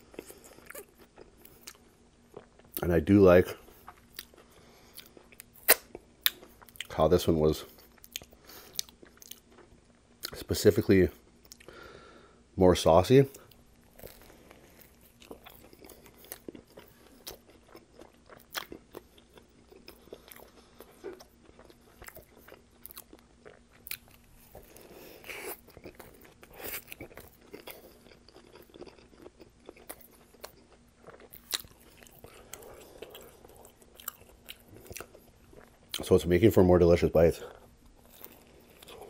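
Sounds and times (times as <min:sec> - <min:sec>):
chewing a sandwich: 0:00.0 - 0:07.0, 0:07.6 - 0:10.5, 0:13.3 - 0:36.3, 0:37.4 - 0:39.0
crusty bread crunching: 0:13.5 - 0:36.3, 0:37.6 - 0:39.0.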